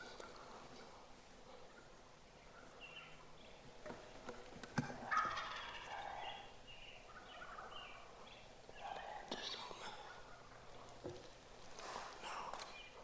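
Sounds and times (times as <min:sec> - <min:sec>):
turkey gobbling: 0:04.7 - 0:11.0.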